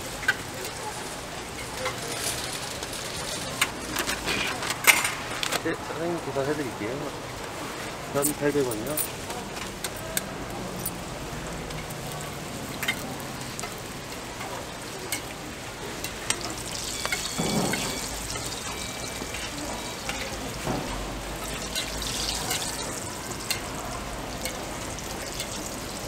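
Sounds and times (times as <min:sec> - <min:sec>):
pancakes sizzling in oil: 0:11.0 - 0:26.0
tongs and spatula clicking on pan: 0:23.4 - 0:23.7.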